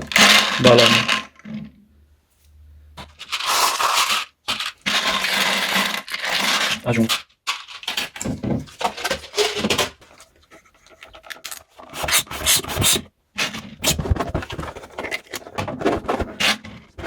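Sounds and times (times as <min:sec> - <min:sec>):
balloon and bottle rubbing: 0:11.8 - 0:13.1, 0:13.8 - 0:17.0.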